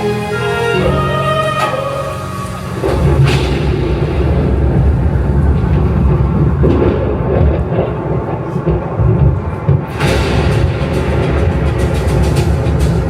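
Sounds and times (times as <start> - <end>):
deep steady rumble: 0.0 - 13.0.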